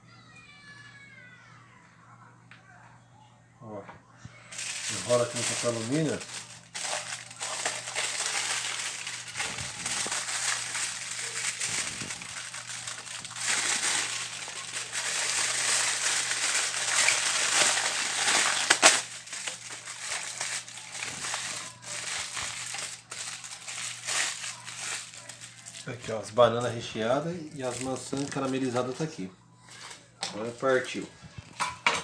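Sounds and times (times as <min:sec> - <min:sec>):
aluminium foil crinkling: 0:04.5 - 0:32.0.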